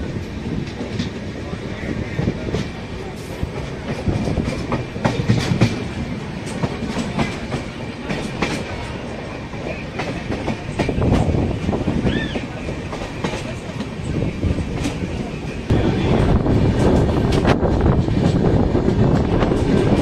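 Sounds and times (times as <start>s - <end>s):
train rumbling: 0.0s - 20.0s
wheels clicking over rail joints: 3.5s - 15.6s.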